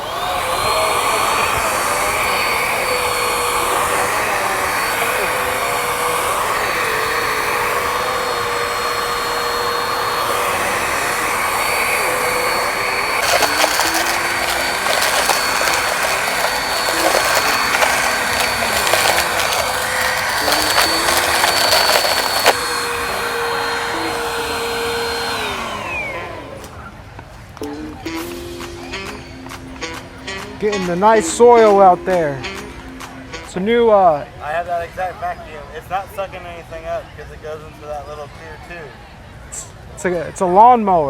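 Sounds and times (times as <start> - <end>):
vacuum cleaner whining: 0.0 - 26.7
debris crackling in vacuum: 13.1 - 22.7.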